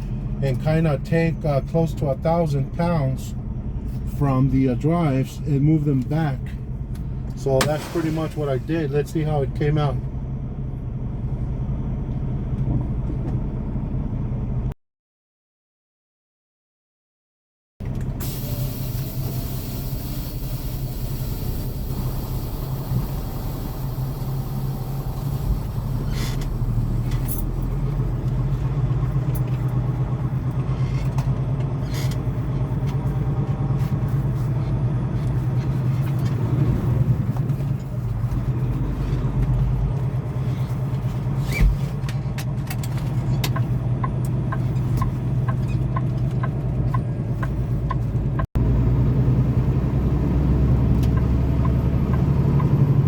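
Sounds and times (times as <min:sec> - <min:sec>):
truck diesel engine running: 0:17.8 - 0:53.0.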